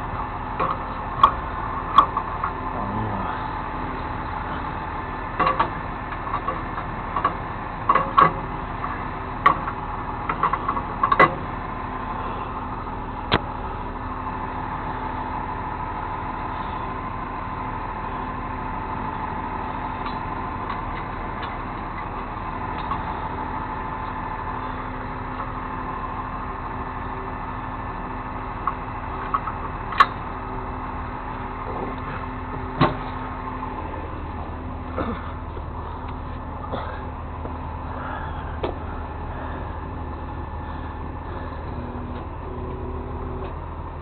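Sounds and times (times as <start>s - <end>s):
truck engine idling: 0.0s - 44.0s
sharp clanks and knocks: 5.4s - 8.4s, 9.4s - 11.4s, 31.7s - 33.2s.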